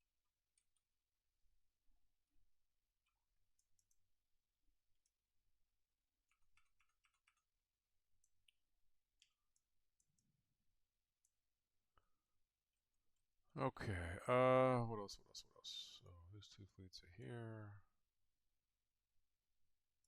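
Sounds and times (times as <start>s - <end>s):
game pieces clicking on board: 6.2s - 7.7s.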